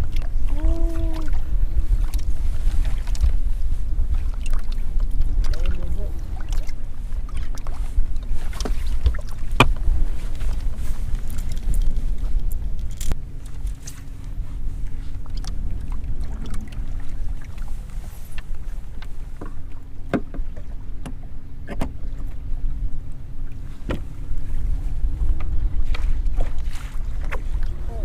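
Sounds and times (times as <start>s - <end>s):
wind and water rumble: 0.0s - 28.0s.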